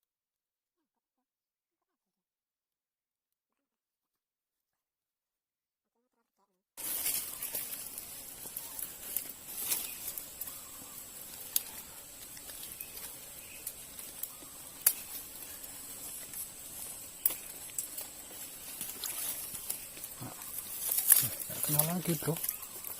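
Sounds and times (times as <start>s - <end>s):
high-pitched insect buzz: 6.8s - 22.9s
sharp clicks and snaps: 13.6s - 15.2s.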